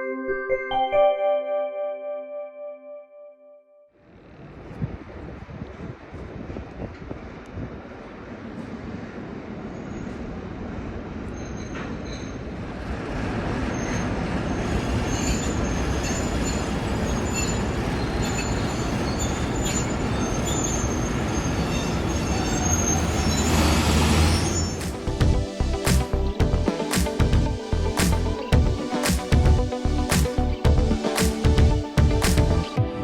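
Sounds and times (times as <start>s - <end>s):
diesel locomotive approaching: 4.0s - 28.8s
wheels squealing on rails: 8.2s - 25.1s.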